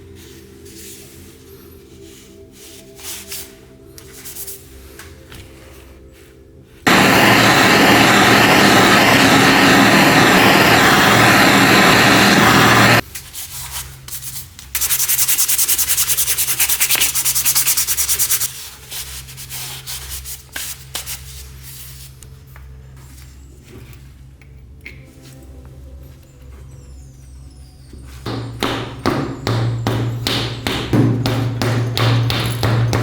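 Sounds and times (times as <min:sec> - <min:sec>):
power tool sanding: 0:06.9 - 0:13.0.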